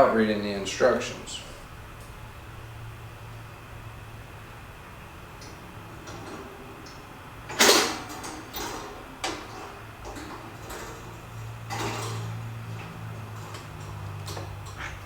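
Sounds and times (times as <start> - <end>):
steady low hum: 0.0 - 15.0
parts clattering: 4.9 - 15.0
light clicks and rustles: 5.4 - 15.0
scraping: 5.4 - 15.0.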